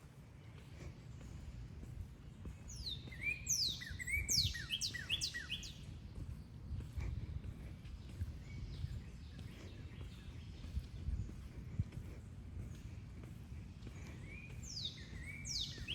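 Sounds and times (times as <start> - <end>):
songbird singing: 0.4 - 15.9.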